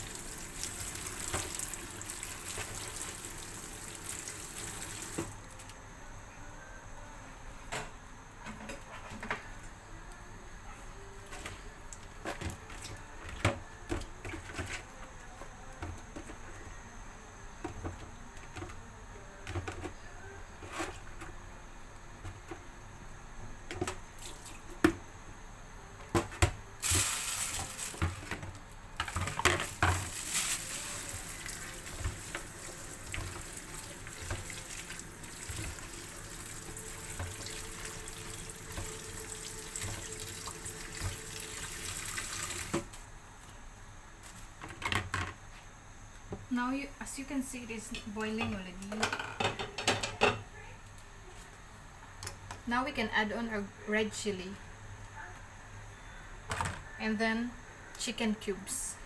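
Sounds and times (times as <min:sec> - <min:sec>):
soup pot bubbling and hissing: 0:00.0 - 0:05.3, 0:29.2 - 0:42.9.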